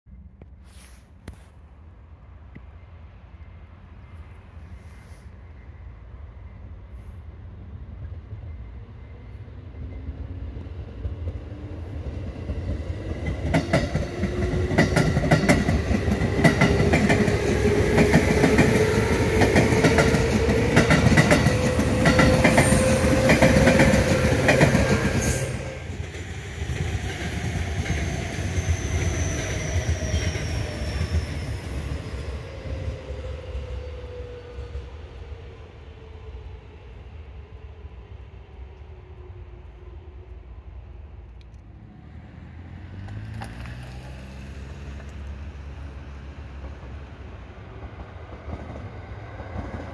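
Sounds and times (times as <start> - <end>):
wheels clacking over rail joints: 12.5 - 25.2
second train whine falling in pitch: 16.2 - 26.0.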